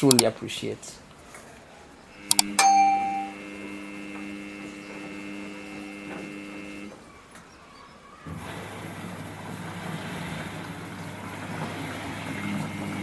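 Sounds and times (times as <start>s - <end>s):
button clicks: 0.0s - 0.2s, 2.3s - 3.4s
short beep: 2.3s - 3.4s.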